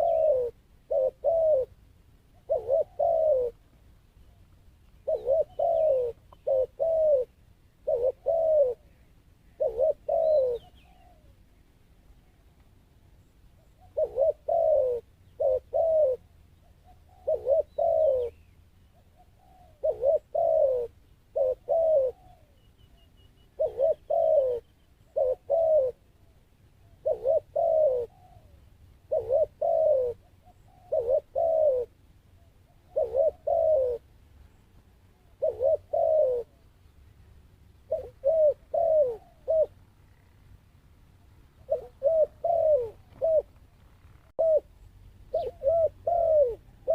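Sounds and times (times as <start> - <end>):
dove cooing: 0.0 - 3.7, 4.3 - 11.4, 13.6 - 34.1, 35.1 - 36.8, 37.8 - 40.4, 41.6 - 46.9.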